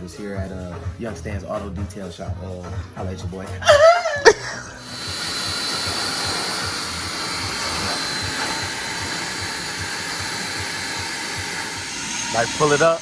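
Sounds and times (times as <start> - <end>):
cleaning machine hissing and throbbing: 3.7 - 13.0.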